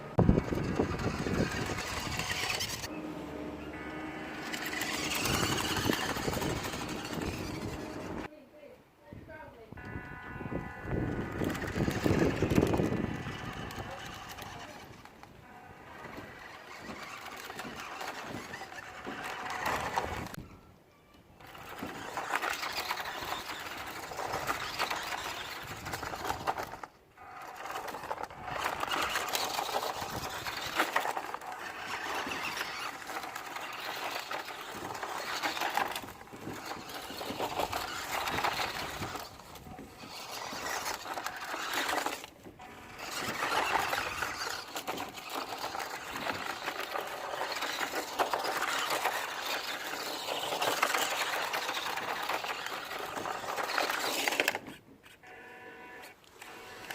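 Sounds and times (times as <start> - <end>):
rc truck electric motor whirring: 0.0 - 8.3, 10.6 - 20.4, 21.4 - 56.9.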